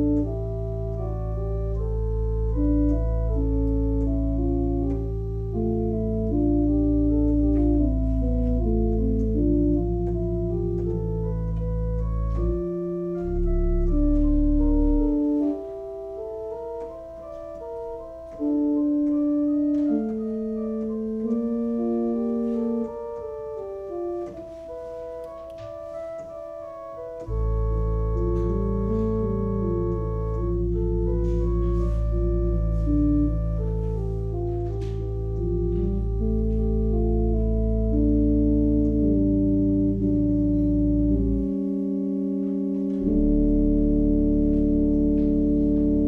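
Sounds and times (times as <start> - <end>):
deep organ bass notes: 0.0 - 46.0
organ playing sustained chords: 0.0 - 46.0.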